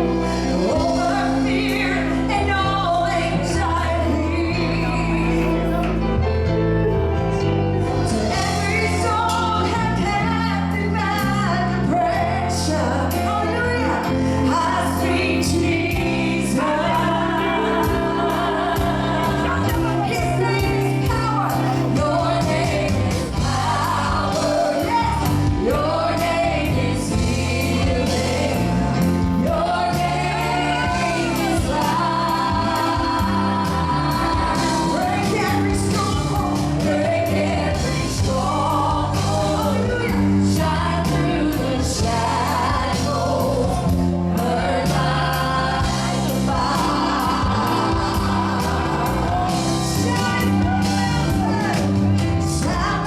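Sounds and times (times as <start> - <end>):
choir singing: 0.0 - 6.2, 7.8 - 51.8
band accompaniment with beat: 5.2 - 53.0.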